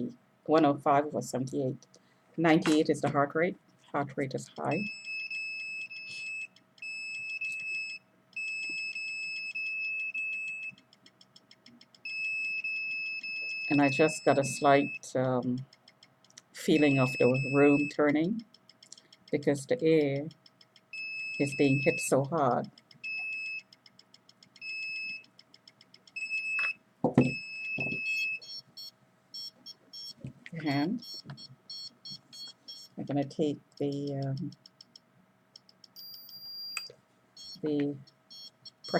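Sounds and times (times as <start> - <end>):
electronic alarm beeping: 4.6 - 10.9, 11.9 - 15.1, 16.6 - 18.4, 20.1 - 23.8, 24.5 - 25.4, 26.0 - 33.0, 35.9 - 38.9
fast ticking: 17.9 - 20.9
quick ticks: 18.4 - 19.4, 20.2 - 20.9, 23.7 - 24.6.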